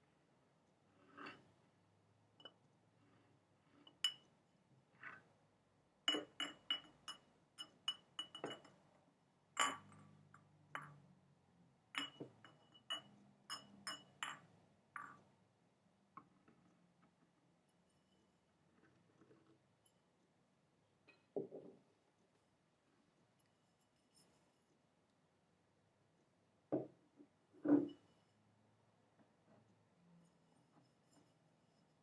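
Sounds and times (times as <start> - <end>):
tapping on glass container: 6.1 - 8.8, 9.6 - 11.0, 12.0 - 15.2.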